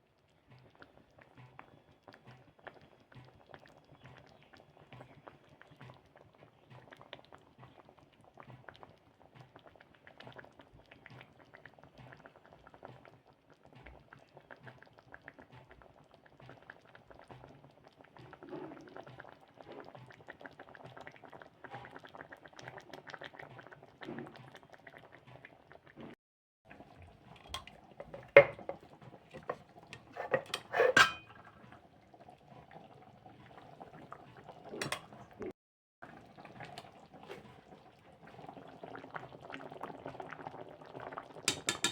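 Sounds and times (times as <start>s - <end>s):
food crackling and bubbling in pan: 0.0s - 41.9s
utensil clanking against pan: 27.4s - 31.4s, 41.5s - 41.9s.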